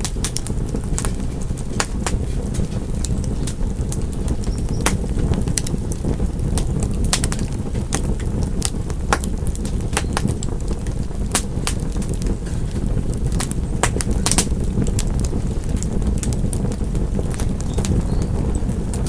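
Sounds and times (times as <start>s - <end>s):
low rumble of burning fire: 0.0s - 19.0s
wood fire popping and snapping: 0.0s - 19.0s.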